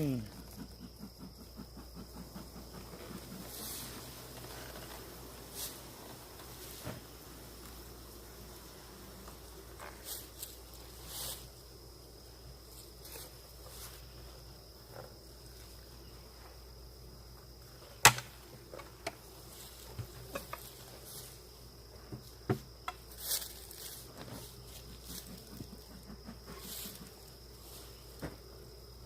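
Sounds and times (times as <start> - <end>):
bees buzzing: 0.0 - 29.0
wooden beehive knocks and clicks: 18.0 - 20.9, 22.0 - 23.1.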